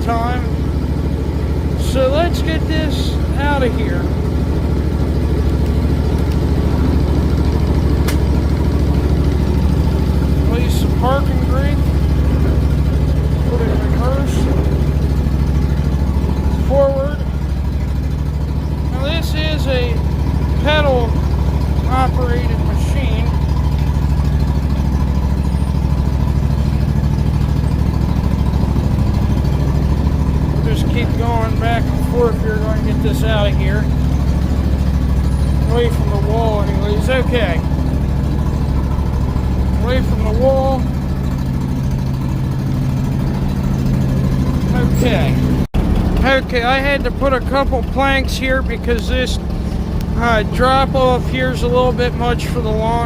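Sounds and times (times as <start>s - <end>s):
riding mower engine running: 0.0s - 53.0s
sharp click: 8.0s - 8.3s.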